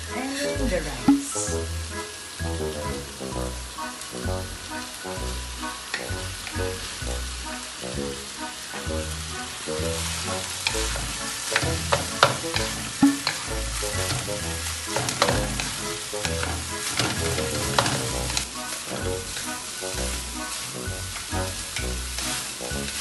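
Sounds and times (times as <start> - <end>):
fried rice sizzling in wok: 0.0 - 23.0
spatula scraping pan: 9.9 - 23.0
spatula clacking against pan: 10.6 - 19.8.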